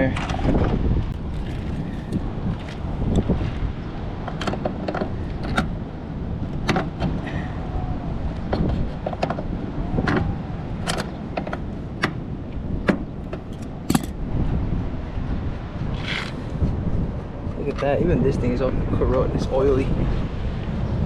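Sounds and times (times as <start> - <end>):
metal tools clicking and clinking: 13.4 - 14.2.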